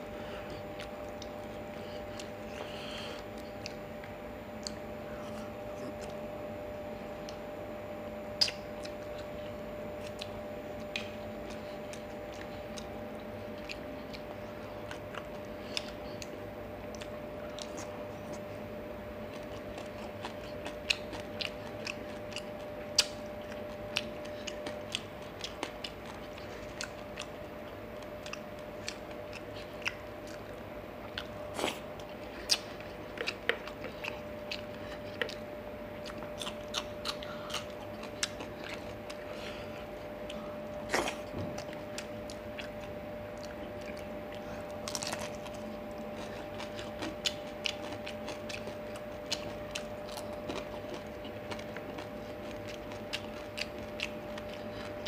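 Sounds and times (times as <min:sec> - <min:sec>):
faint steady hum: 0:00.0 - 0:55.0
chewing and crunching: 0:00.1 - 0:55.0
mouth clicks and smacks: 0:08.4 - 0:09.3.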